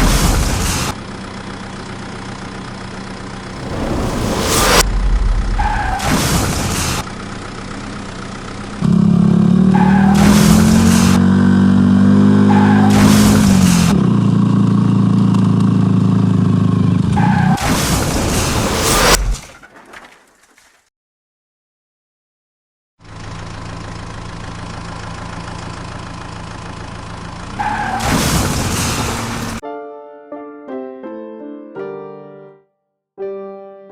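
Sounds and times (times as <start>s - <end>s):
vehicle engine drone: 0.0s - 19.4s, 23.0s - 29.6s
vehicle engine idling: 1.0s - 3.6s, 6.6s - 8.8s, 23.0s - 27.6s
loud noisy rush: 3.4s - 7.7s, 17.8s - 19.4s.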